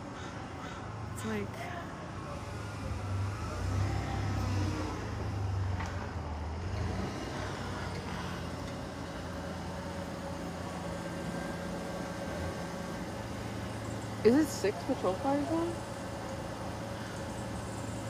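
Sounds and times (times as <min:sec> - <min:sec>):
vehicle engine running: 0:05.2 - 0:18.0.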